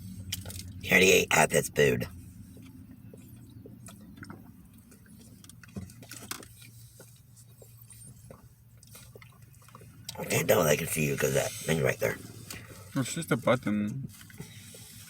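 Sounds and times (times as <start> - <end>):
steady low hum: 0.0 - 15.0
soft clicks and crackles: 2.4 - 10.2
person chewing food: 2.6 - 10.2.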